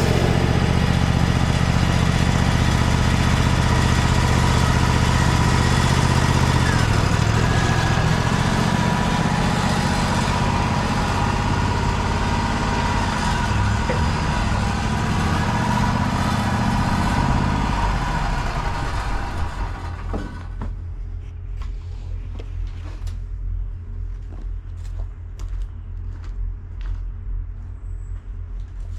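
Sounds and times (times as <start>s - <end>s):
band sawmill running: 0.0s - 21.2s.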